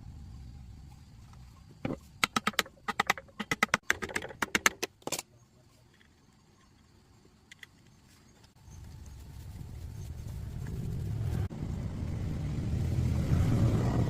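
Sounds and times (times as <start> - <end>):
sharp clicks and taps: 1.8 - 5.2
low hum: 8.6 - 14.0.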